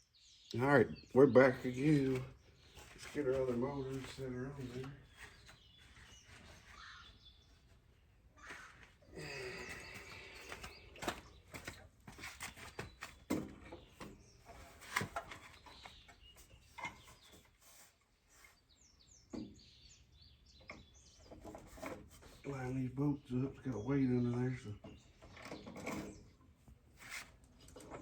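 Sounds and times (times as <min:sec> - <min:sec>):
birds chirping faintly: 0:00.0 - 0:28.0
shuffling: 0:01.5 - 0:18.6.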